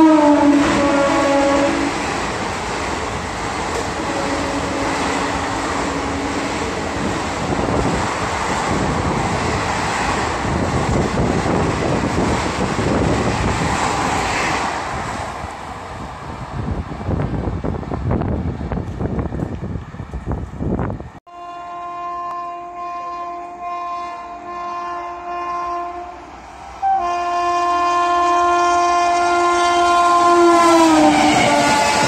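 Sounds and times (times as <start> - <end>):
train horn chord: 0.0 - 2.0, 3.8 - 7.1, 21.3 - 32.0
train wheels rushing on rails: 0.0 - 21.2, 23.2 - 32.0.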